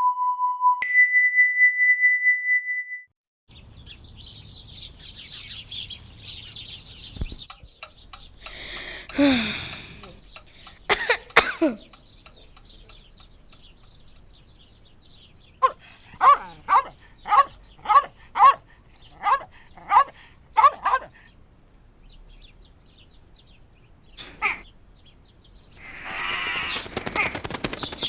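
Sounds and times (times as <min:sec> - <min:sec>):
dog barking: 0:15.6 - 0:21.2.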